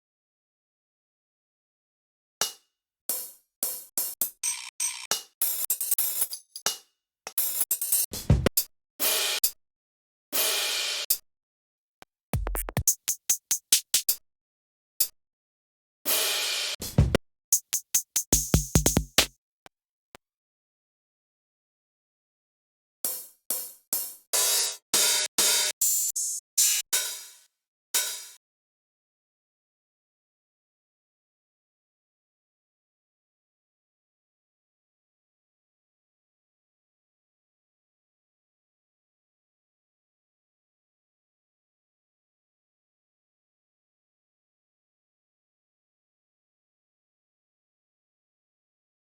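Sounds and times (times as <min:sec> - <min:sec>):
deep kick drum thump: 0:12.4 - 0:12.8, 0:16.9 - 0:17.2, 0:18.4 - 0:19.3
electronic hi-hat and cymbal: 0:12.4 - 0:14.2, 0:17.6 - 0:19.3, 0:23.2 - 0:27.4
electronic hi-hat and cymbal hits: 0:17.6 - 0:19.3.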